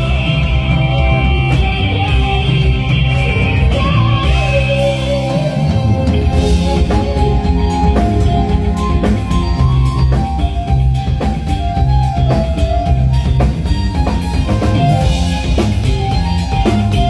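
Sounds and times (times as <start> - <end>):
band playing through speakers: 0.0 - 17.0.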